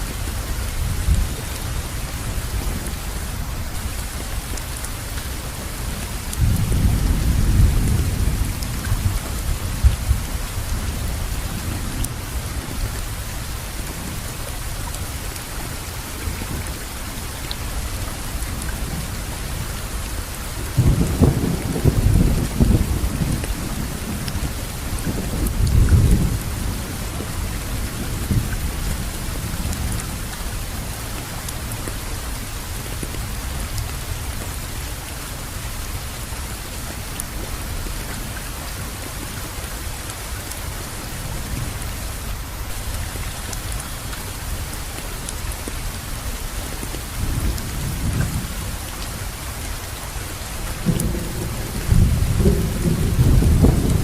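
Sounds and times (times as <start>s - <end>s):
heavy rain falling: 0.0s - 54.0s
thunder rumbling: 20.6s - 30.9s, 50.8s - 54.0s.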